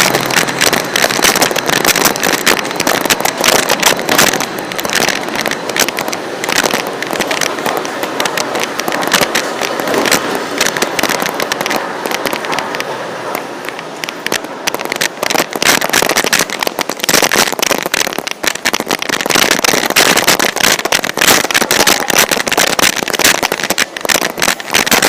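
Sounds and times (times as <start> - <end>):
microphone crackling and knocking: 0.0 - 12.8.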